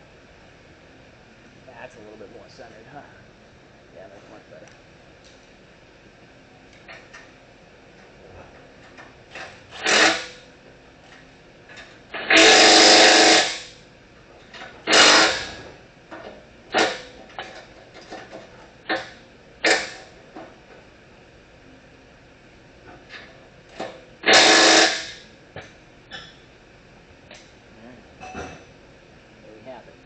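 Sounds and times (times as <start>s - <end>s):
impact wrench bursts: 9.3s - 10.5s, 12.2s - 13.8s, 14.8s - 15.6s, 16.7s - 17.2s, 18.9s - 20.1s, 24.2s - 25.2s.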